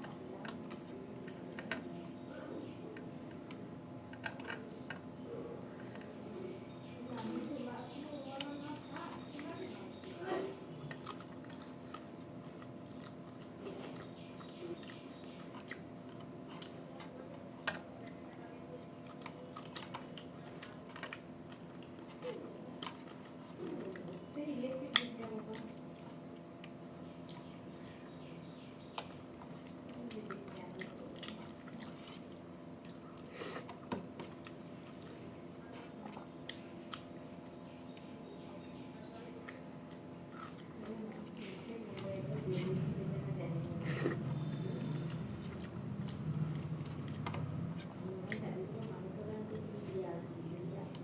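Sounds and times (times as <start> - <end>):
low steady hum: 0.0 - 51.0
person chewing and eating: 8.3 - 43.0, 43.6 - 49.9
small clicks and crunches: 18.8 - 28.0.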